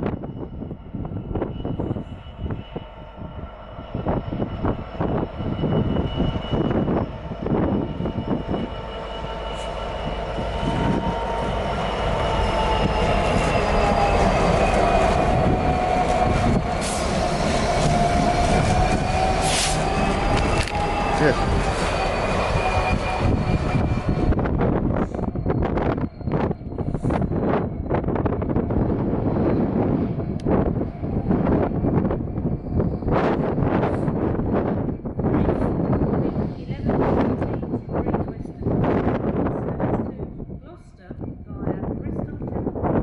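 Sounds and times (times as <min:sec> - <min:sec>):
train low rumble: 0:00.0 - 0:43.0
train clicks and knocks on rails: 0:04.0 - 0:32.3
high wheel squeal: 0:07.6 - 0:28.0.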